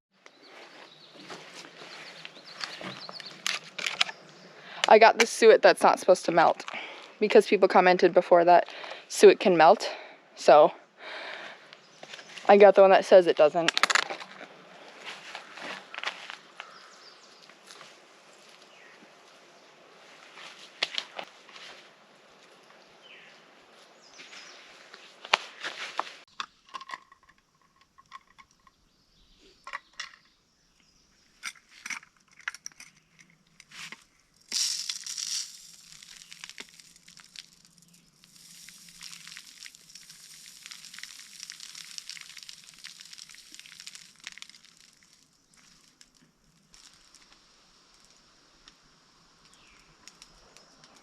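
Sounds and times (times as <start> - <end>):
plastic packaging crinkling: 2.4 - 4.2, 33.8 - 47.4.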